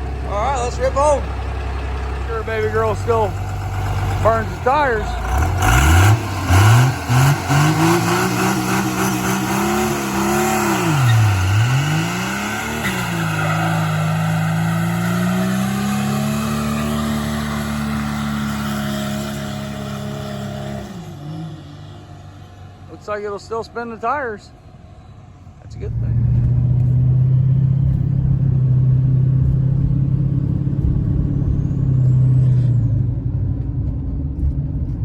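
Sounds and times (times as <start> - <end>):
diesel engine revving: 0.0 - 35.0
tires spinning: 0.0 - 35.0.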